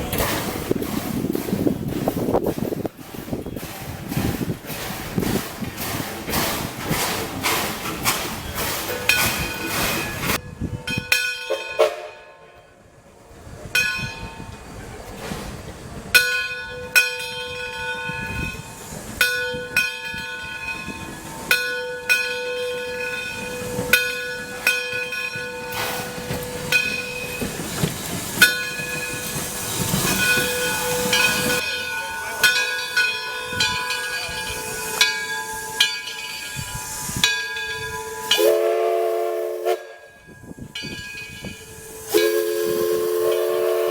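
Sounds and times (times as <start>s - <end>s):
steam hissing: 0.0s - 10.4s, 17.9s - 43.9s
steam locomotive bell ringing: 3.2s - 12.9s, 13.7s - 14.8s, 16.2s - 43.9s
locomotive whistle blast: 29.1s - 43.9s.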